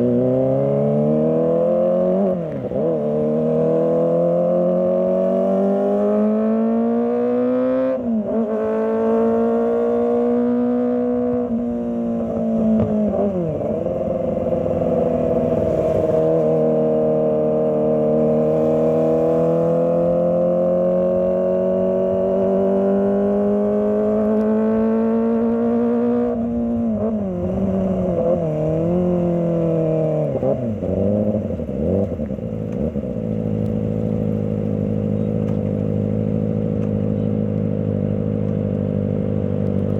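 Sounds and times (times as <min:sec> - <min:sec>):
motorcycle engine running: 0:08.5 - 0:39.9.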